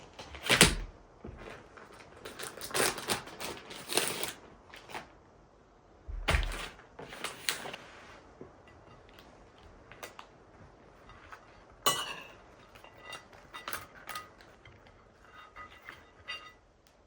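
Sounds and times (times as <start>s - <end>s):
cookware scraping and clattering: 11.0s - 16.7s.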